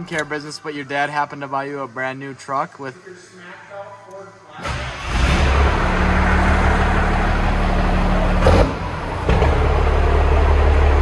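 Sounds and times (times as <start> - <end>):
diesel engine deep drone: 4.6 - 11.0.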